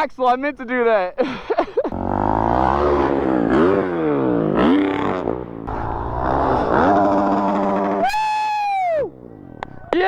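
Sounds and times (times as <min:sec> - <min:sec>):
dirt bike engine revving: 0:01.9 - 0:08.4.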